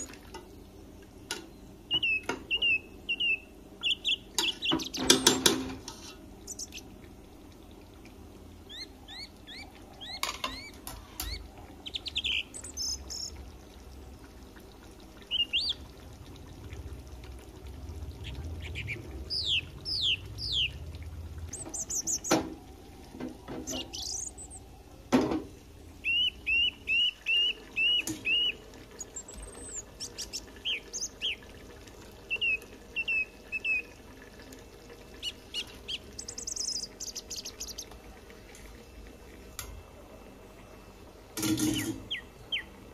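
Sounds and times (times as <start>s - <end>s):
birds chirping and calling: 1.9s - 5.6s, 6.4s - 6.9s, 8.6s - 13.4s, 15.3s - 15.8s, 18.2s - 20.8s, 21.5s - 22.4s, 23.6s - 24.6s, 26.0s - 31.4s, 32.3s - 33.8s, 35.1s - 37.9s, 41.6s - 42.7s.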